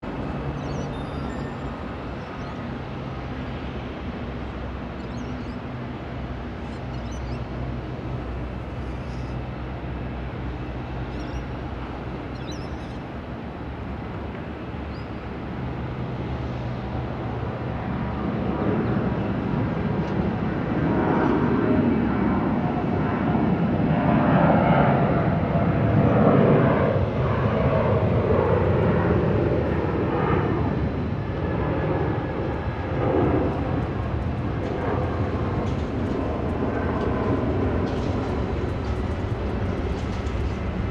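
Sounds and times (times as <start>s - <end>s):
distant jet engine rumble: 0.0s - 40.9s
faint bird chirps: 0.5s - 2.7s, 5.0s - 5.6s, 6.6s - 7.5s, 8.8s - 9.4s, 11.1s - 11.6s, 12.3s - 13.0s.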